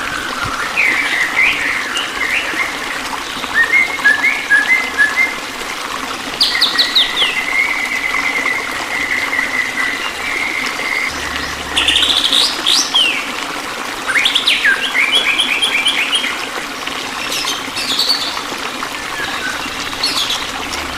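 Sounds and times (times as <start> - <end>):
water trickling: 0.0 - 20.9
songbirds singing: 17.2 - 20.9.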